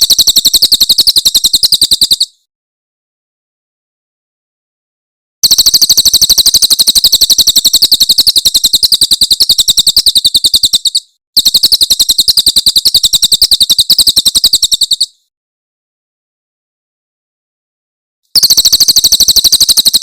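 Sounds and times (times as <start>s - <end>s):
high-pitched bird trill: 0.0s - 2.4s, 5.4s - 15.2s, 18.4s - 20.0s.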